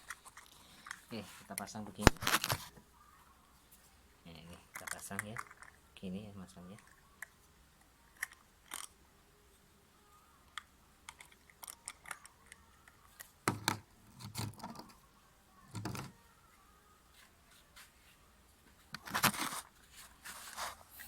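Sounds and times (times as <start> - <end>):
plastic parts knocking: 13.4 - 14.9.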